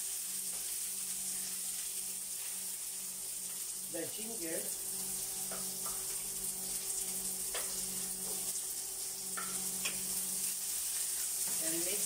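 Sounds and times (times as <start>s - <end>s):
garlic and ginger frying in oil: 0.0s - 12.0s
wooden spatula tapping a plate: 9.4s - 10.0s.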